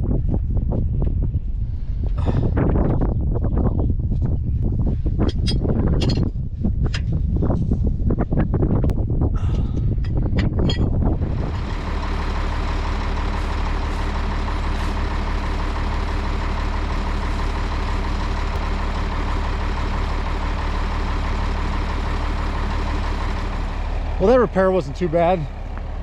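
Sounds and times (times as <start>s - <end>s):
tractor engine idling: 10.2s - 26.0s.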